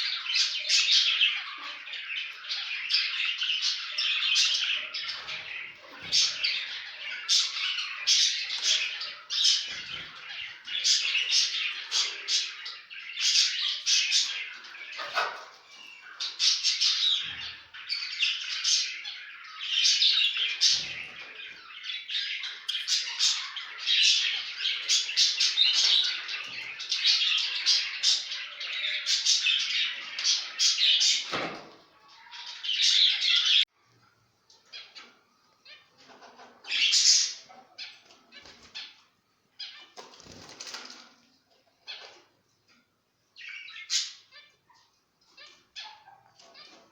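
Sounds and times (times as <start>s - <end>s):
finches chirping: 0.0s - 31.2s.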